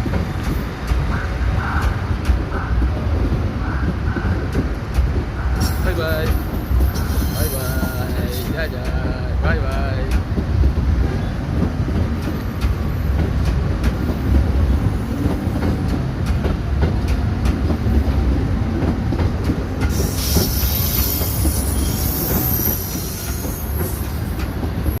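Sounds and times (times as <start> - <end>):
train rumbling: 0.0 - 25.0
wheels clicking over rail joints: 4.3 - 25.0
high-pitched wheel squeal: 6.9 - 8.4, 20.0 - 24.2.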